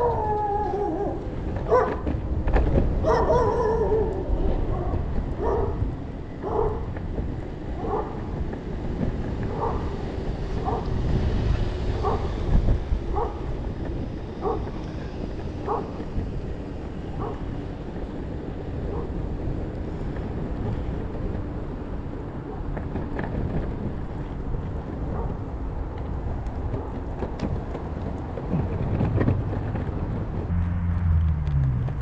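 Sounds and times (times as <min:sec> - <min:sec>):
dog barking: 0:00.0 - 0:02.0, 0:03.0 - 0:04.1, 0:04.7 - 0:05.8, 0:06.4 - 0:06.9, 0:07.8 - 0:08.2, 0:09.5 - 0:09.9, 0:10.6 - 0:11.0, 0:12.0 - 0:12.3, 0:13.1 - 0:13.5, 0:14.4 - 0:14.8, 0:15.6 - 0:16.0, 0:17.2 - 0:17.5
wind rumble on microphone: 0:00.0 - 0:32.0.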